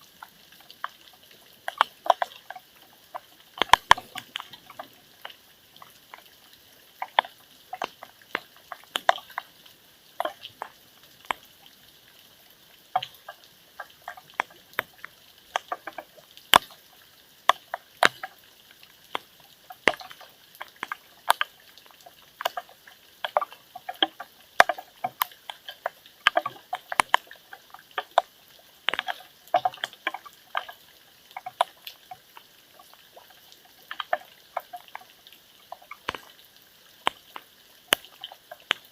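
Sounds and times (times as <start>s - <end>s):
faint steady hiss: 0.0s - 38.9s
water drops plinking: 3.6s - 4.9s.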